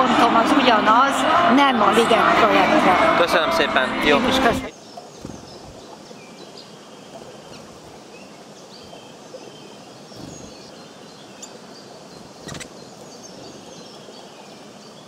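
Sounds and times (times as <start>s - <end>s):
outdoor background noise: 0.0s - 15.0s
small birds chirping: 4.7s - 15.0s.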